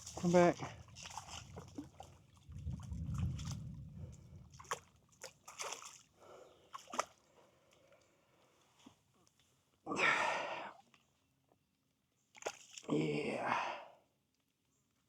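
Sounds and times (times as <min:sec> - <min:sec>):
low rumble: 0:00.0 - 0:05.1
fish splashing in water: 0:00.0 - 0:07.2.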